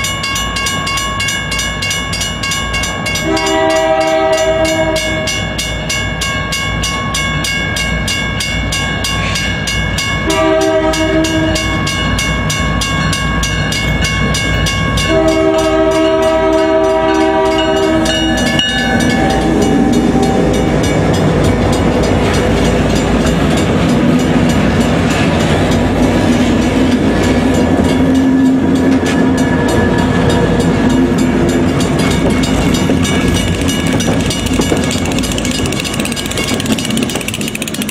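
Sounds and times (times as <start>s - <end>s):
train rumble and wheel noise: 0.0s - 37.9s
train horn blasts: 3.2s - 5.6s, 10.2s - 11.8s, 15.0s - 20.7s
locomotive engine drone: 9.8s - 37.9s.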